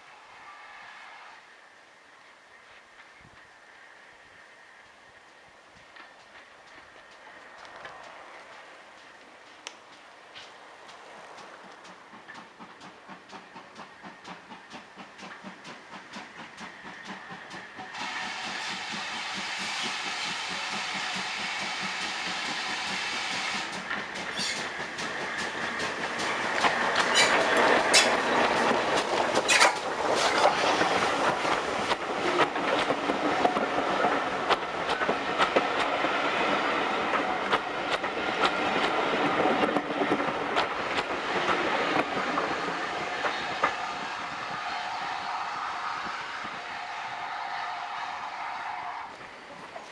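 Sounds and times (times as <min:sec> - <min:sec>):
train wheels clicking over rail joints: 0:05.2 - 0:46.8
steam locomotive chugging: 0:05.2 - 0:49.9
steam hissing: 0:11.1 - 0:49.8.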